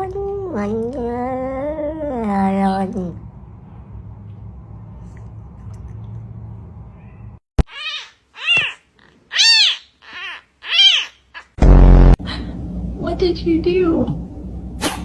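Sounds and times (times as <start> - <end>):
cat meowing: 7.0 - 11.6.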